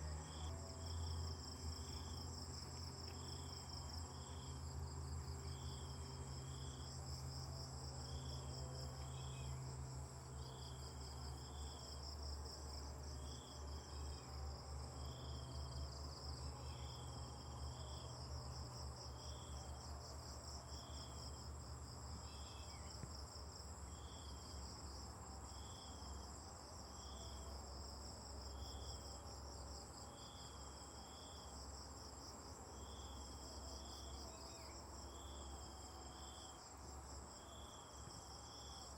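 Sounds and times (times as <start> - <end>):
crickets chirring: 12.8 - 38.9.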